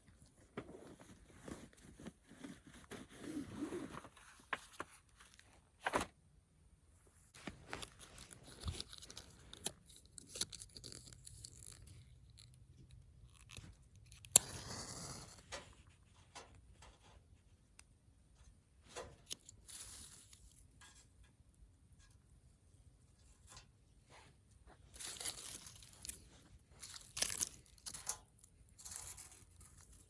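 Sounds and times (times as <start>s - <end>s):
rustling and crinkling: 0.0s - 6.3s, 7.0s - 30.0s.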